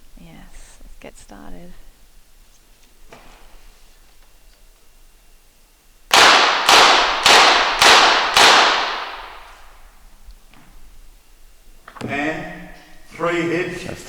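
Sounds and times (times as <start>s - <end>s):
pistol shots: 6.1s - 9.8s.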